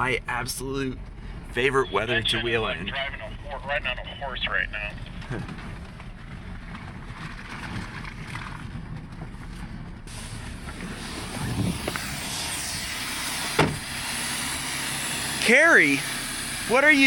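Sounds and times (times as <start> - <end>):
vehicle engine and road rumble: 0.0 - 17.0
hissing noise: 10.1 - 17.0.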